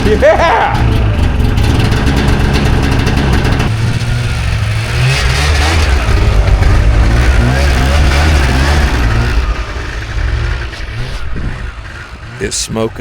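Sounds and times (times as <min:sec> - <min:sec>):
snowmobile engine running hard: 0:00.0 - 0:13.0.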